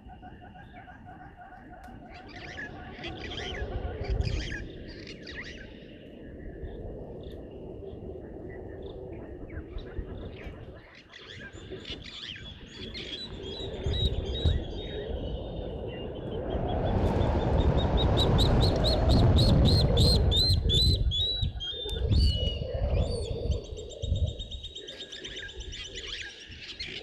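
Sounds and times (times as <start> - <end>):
birds chirping and calling: 0.0 - 7.4, 8.5 - 16.6, 18.3 - 27.0
steady low rumble: 13.3 - 23.6.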